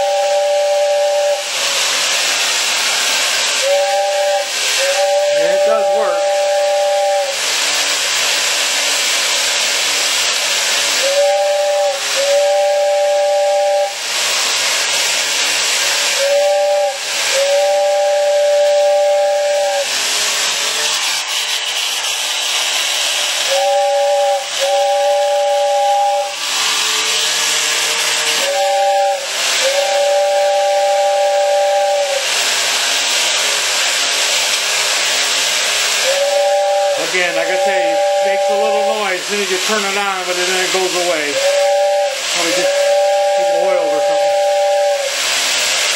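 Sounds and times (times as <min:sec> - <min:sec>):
two-note train whistle: 0:00.0 - 0:01.6, 0:03.5 - 0:07.5, 0:11.0 - 0:14.0, 0:16.2 - 0:21.6, 0:23.4 - 0:32.3, 0:36.0 - 0:45.2
toy train steam hiss: 0:00.0 - 0:45.9.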